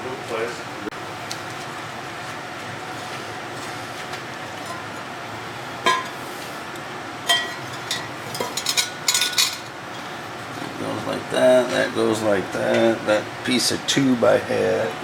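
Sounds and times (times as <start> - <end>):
steady background hum: 0.0 - 15.0
metal parts and tools clinking: 7.3 - 9.7.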